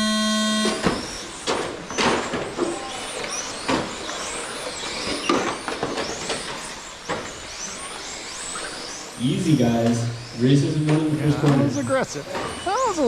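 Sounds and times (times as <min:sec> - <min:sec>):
electric motor whines: 0:00.0 - 0:01.3.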